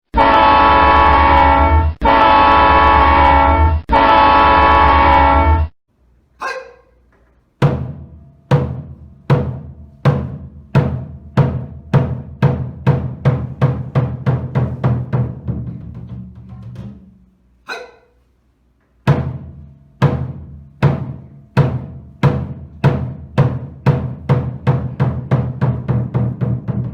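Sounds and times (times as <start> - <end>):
loud horn blasts: 0.1 - 5.7
accelerating drum strikes: 7.6 - 17.3, 19.1 - 26.9.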